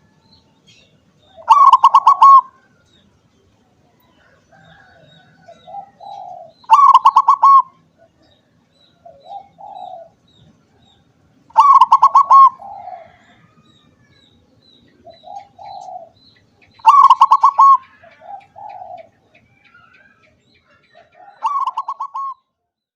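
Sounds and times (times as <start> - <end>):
dove cooing: 1.2 - 2.8, 4.1 - 8.4, 9.0 - 10.2, 11.5 - 14.2, 14.9 - 22.4.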